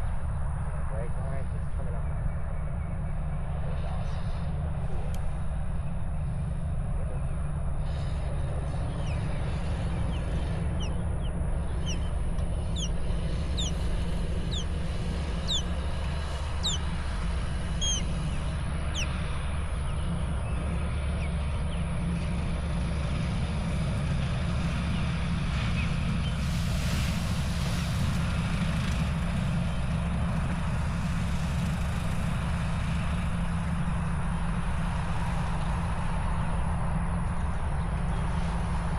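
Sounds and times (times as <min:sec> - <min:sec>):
low engine rumble: 0:00.0 - 0:38.9
short high bird chirps: 0:13.6 - 0:13.9, 0:15.4 - 0:15.7, 0:16.6 - 0:16.9, 0:17.8 - 0:18.1
rush of hiss: 0:26.4 - 0:28.5.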